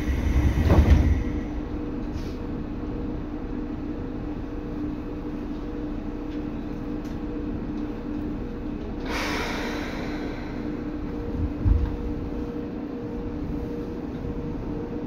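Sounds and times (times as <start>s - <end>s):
train wheels rumbling on track: 0.0s - 3.4s, 7.7s - 14.4s
steady hum: 0.0s - 15.0s
loud hiss: 9.1s - 10.7s.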